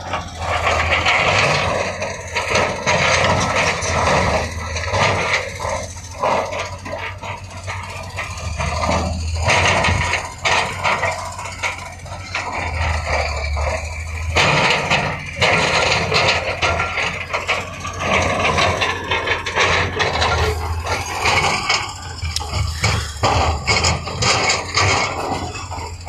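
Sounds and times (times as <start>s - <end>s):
clanks and scraping of rock and metal: 0.0s - 26.0s
diesel engine running: 0.0s - 26.0s.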